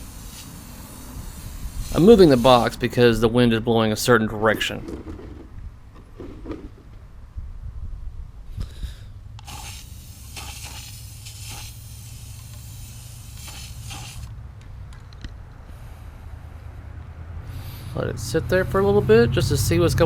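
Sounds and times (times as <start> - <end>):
spray paint can hissing: 0.0 - 2.8, 9.4 - 14.3
wind rumble on microphone: 1.1 - 3.6, 4.7 - 9.2.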